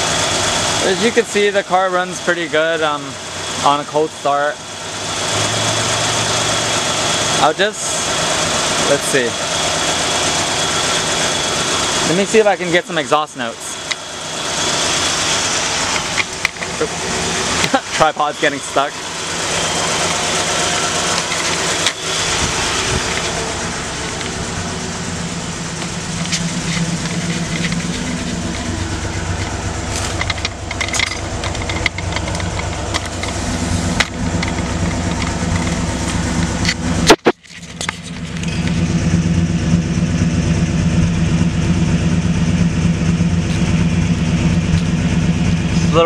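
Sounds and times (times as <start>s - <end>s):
car engine idling: 0.0s - 46.0s
sharp click: 36.6s - 38.6s.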